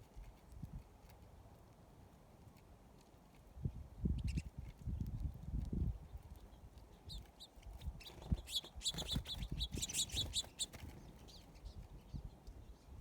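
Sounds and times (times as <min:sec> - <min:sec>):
small bird chirping: 0:03.6 - 0:13.0.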